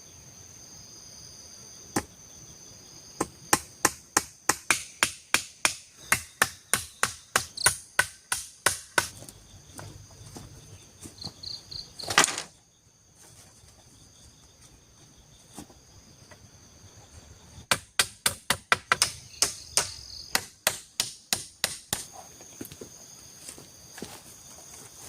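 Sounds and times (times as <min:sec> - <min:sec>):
insects droning: 0:00.0 - 0:25.0
blade chopping wood: 0:03.5 - 0:09.2.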